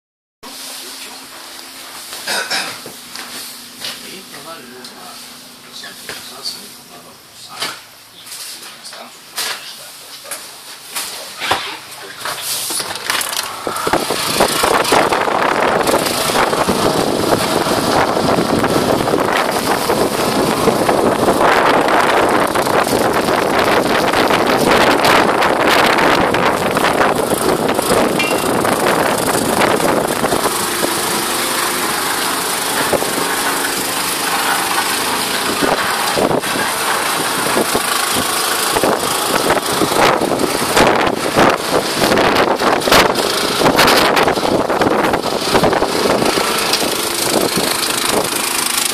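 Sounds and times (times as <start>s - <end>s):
faint machine hum: 0.5s - 48.9s
wind buffeting microphone: 13.6s - 31.1s, 35.4s - 48.5s.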